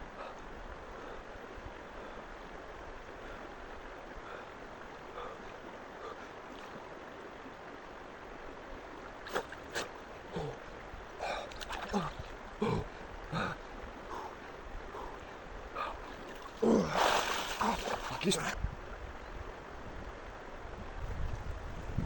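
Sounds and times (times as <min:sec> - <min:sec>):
water lapping and sloshing: 0:00.2 - 0:18.6
sharp water splashes: 0:11.5 - 0:12.3, 0:16.2 - 0:18.5.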